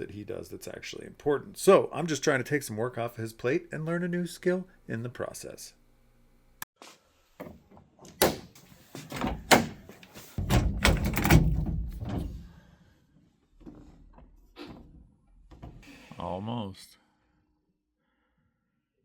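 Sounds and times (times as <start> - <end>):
door clunks and knocks: 7.4 - 12.6.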